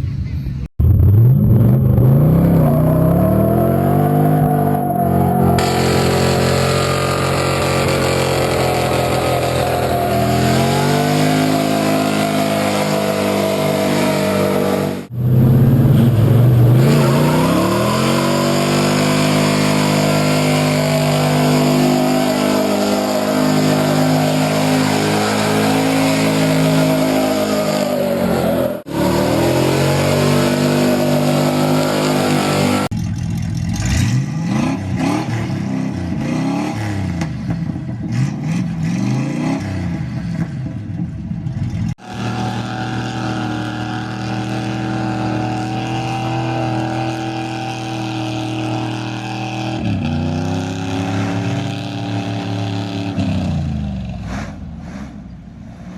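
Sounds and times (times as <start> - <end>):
pickup truck engine revving: 0.8 - 40.4, 42.0 - 55.9
engine revving in short bursts: 5.2 - 32.9.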